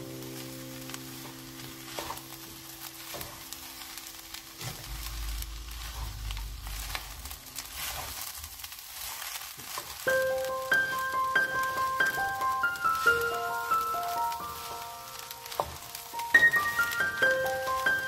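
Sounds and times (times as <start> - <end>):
fried rice sizzling in a pan: 0.0 - 18.0
light music: 0.0 - 18.0
spatula scraping and tapping pan: 1.2 - 2.4.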